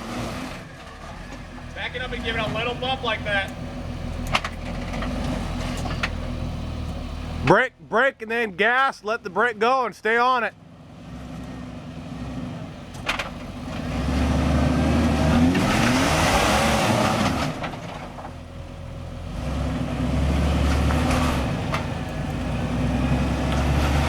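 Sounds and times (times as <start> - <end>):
engine revving under load: 0.0 - 7.5, 10.6 - 24.0
tires spinning: 0.0 - 7.6, 10.6 - 24.0.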